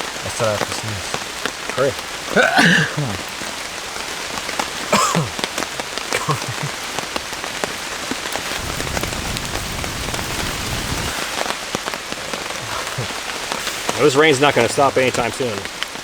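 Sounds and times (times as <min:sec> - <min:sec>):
heavy rain falling: 0:00.0 - 0:16.0
raindrops ticking close by: 0:00.0 - 0:16.0
low rumble: 0:08.5 - 0:11.2.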